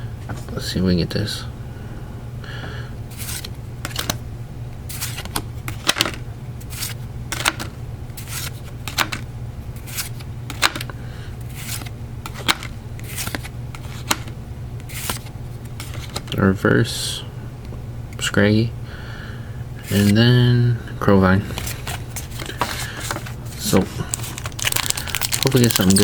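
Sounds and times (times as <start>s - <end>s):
trading cards snapping: 24.1s - 26.0s.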